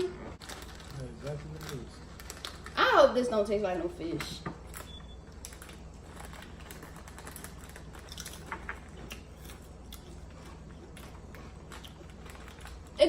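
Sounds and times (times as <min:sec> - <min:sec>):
faint low hum: 0:00.0 - 0:13.0
snack bag crinkling: 0:00.4 - 0:03.0, 0:04.6 - 0:13.0
crunchy snack being eaten: 0:04.7 - 0:13.0.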